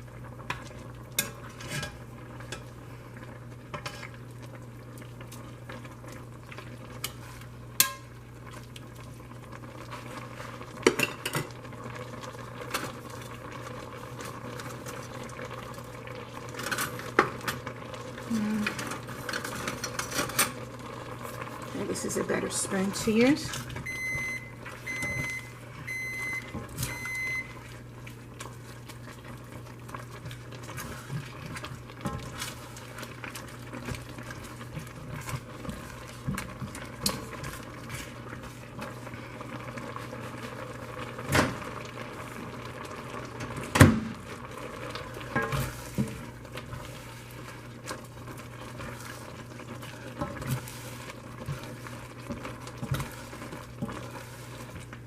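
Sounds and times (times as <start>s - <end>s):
noodles bubbling in a pot: 0.0s - 55.0s
short electronic beep: 23.9s - 27.5s.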